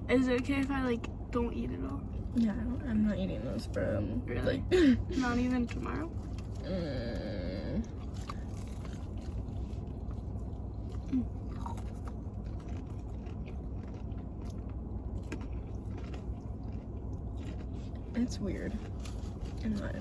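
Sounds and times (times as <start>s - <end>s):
steady low hum: 0.0s - 20.0s
chewing crunchy fried food: 5.6s - 20.0s.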